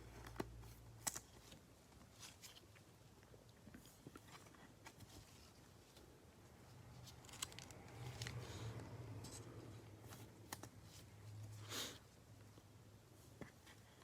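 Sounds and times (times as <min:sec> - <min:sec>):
packaging crinkle: 0:07.0 - 0:08.4
cards clicking and rustling: 0:07.0 - 0:10.8.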